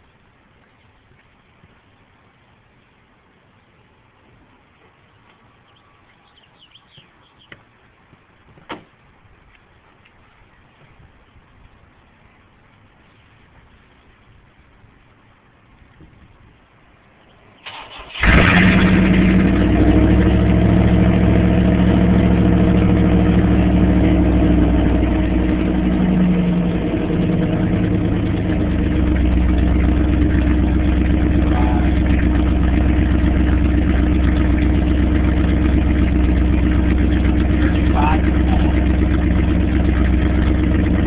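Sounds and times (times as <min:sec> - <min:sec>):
car engine cranking: 0:17.6 - 0:41.0
car engine idling: 0:17.6 - 0:41.0.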